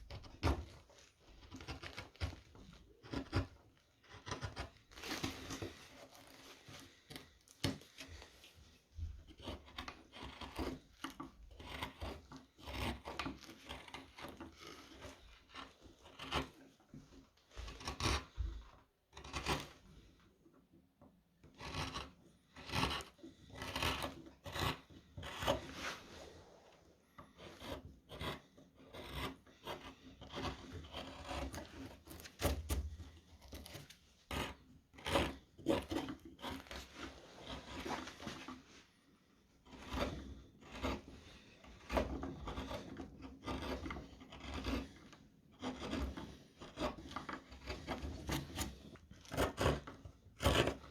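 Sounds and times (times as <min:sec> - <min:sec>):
gouge scraping wood: 0:00.0 - 0:20.2, 0:21.4 - 0:50.9.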